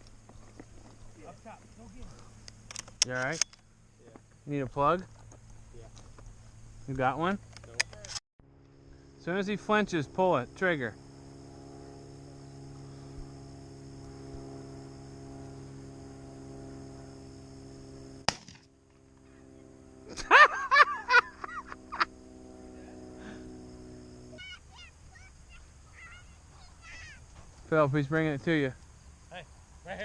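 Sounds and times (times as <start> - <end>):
steady hum: 8.4 - 30.0
shotgun shot: 18.3 - 18.7
loud high calls: 24.3 - 27.3.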